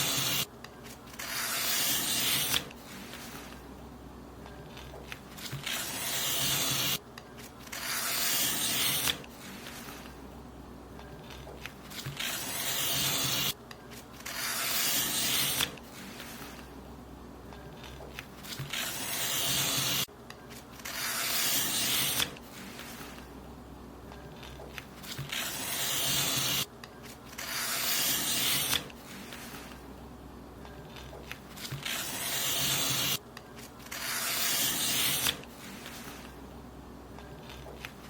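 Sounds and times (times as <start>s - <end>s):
paper being cut: 0.0s - 3.6s, 4.7s - 10.1s, 11.2s - 16.7s, 17.8s - 20.1s, 20.8s - 23.2s, 24.4s - 29.8s, 30.9s - 33.2s, 33.8s - 36.3s.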